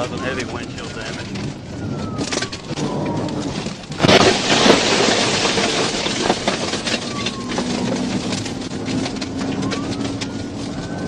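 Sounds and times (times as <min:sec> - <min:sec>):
tyres and engine rumble: 0:00.0 - 0:11.0
stones striking car: 0:03.5 - 0:09.8.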